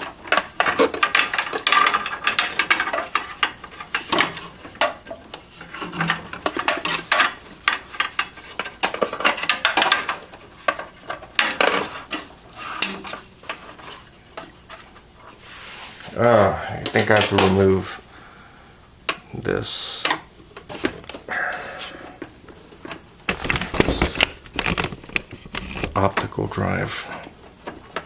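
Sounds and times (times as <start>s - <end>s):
cable clicking inside computer case: 23.3s - 26.0s.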